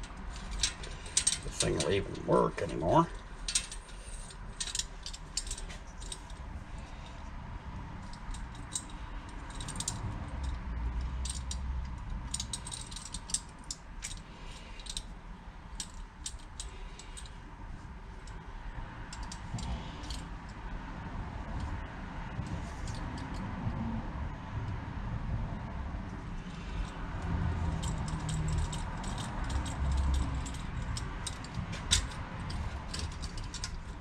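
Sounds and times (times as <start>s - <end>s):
small metal tools clinking: 0.0s - 6.4s, 8.0s - 11.6s, 12.3s - 15.1s, 27.6s - 34.0s.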